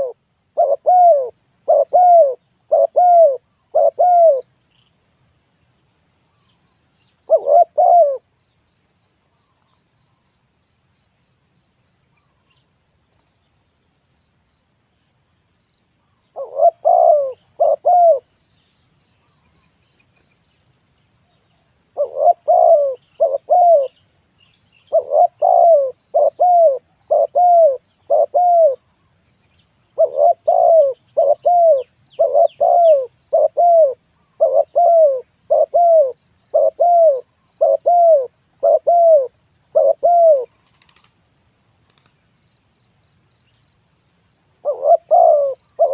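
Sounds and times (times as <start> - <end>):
dove cooing: 0.0 - 4.5, 7.3 - 8.3, 16.3 - 18.3, 22.0 - 24.0, 24.9 - 28.9, 30.0 - 41.1, 44.6 - 45.9.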